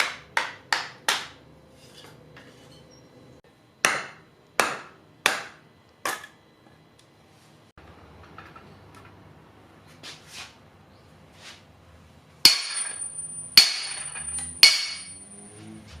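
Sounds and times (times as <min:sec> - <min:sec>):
high metallic ring: 0:12.5 - 0:15.9.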